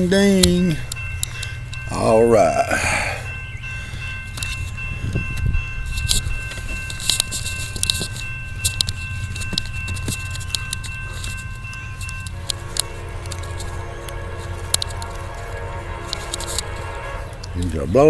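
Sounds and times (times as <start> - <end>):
railroad crossing bell ringing: 0.0 - 18.0
train horn: 12.2 - 18.0.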